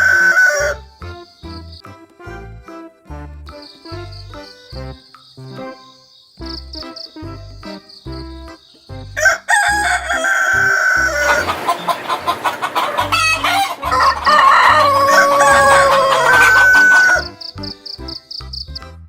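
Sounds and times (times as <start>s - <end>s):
background music with beat: 0.0s - 10.0s, 12.5s - 19.0s
rooster crowing: 9.2s - 17.3s
chickens clucking: 10.2s - 17.5s.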